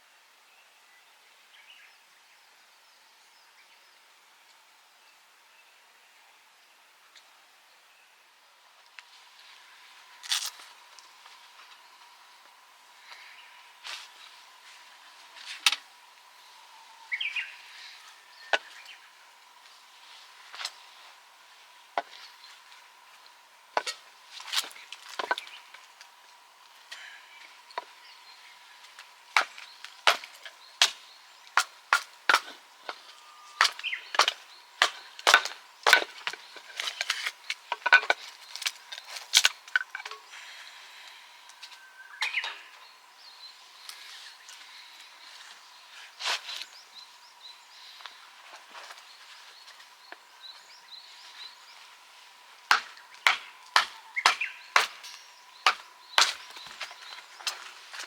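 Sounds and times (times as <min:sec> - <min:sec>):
birds chirping: 0:00.9 - 0:58.0
firewood snapping and cracking: 0:29.4 - 0:32.6, 0:33.6 - 0:40.2, 0:52.7 - 0:57.6.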